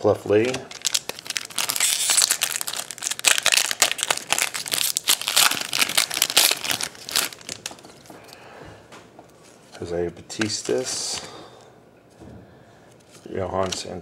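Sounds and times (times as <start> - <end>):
foil wrapper crinkling: 0.3 - 8.2.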